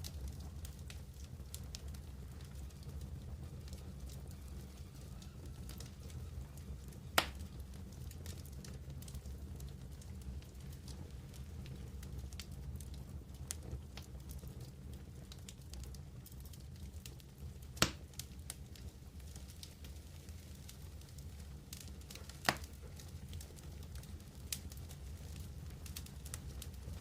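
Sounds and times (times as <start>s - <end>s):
campfire crackling: 0.0s - 27.0s
low rumble of flames: 0.0s - 27.0s
loud sharp pop from fire: 7.2s - 7.5s, 17.8s - 18.1s, 22.1s - 22.8s.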